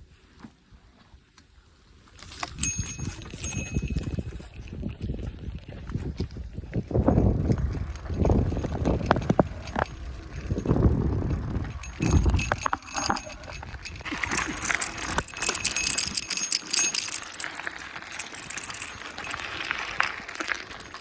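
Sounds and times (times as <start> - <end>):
bicycle rattling and clicking: 2.2 - 21.0
wind buffeting microphone: 2.5 - 17.4.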